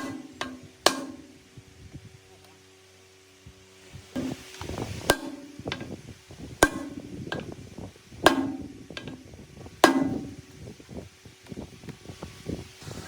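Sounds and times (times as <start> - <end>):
hammer striking metal: 0.0 - 1.3, 6.6 - 7.0.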